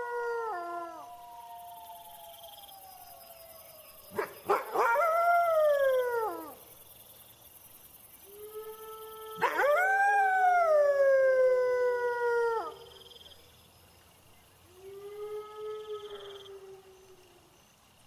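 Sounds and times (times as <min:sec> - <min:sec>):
low steady wolf howl: 0:00.0 - 0:06.6, 0:08.3 - 0:13.1, 0:14.7 - 0:17.5
wolf howling: 0:00.0 - 0:06.6, 0:08.4 - 0:12.8
crickets chirping: 0:00.0 - 0:18.0.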